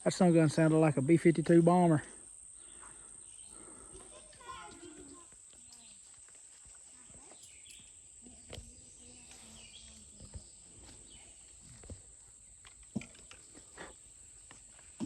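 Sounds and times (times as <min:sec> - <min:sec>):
faint bird chirps: 0:07.0 - 0:11.6.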